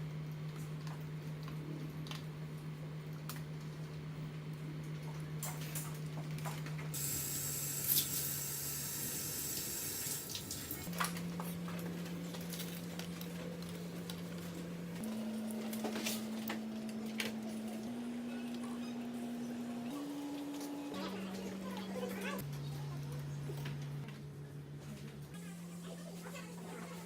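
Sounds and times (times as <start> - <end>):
water running: 7.0 - 10.9.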